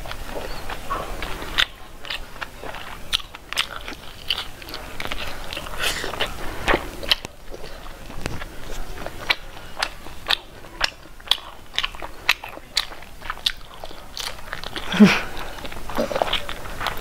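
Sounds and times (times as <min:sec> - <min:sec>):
person biting and chewing: 0:00.0 - 0:17.0.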